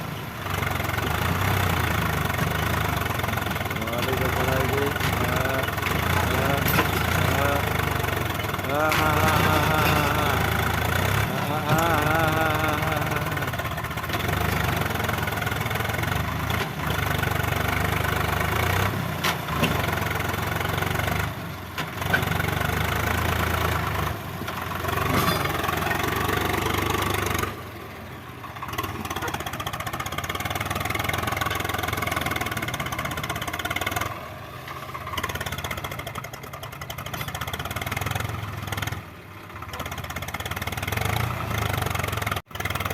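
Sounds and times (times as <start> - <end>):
diesel tractor engine running: 0.0 - 42.9
person speaking: 3.8 - 13.6.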